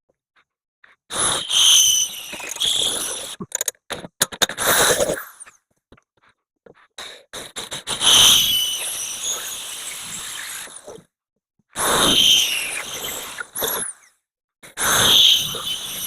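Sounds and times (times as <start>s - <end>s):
high squeal: 1.2s - 3.4s, 8.0s - 10.8s, 11.9s - 13.9s, 14.8s - 16.0s.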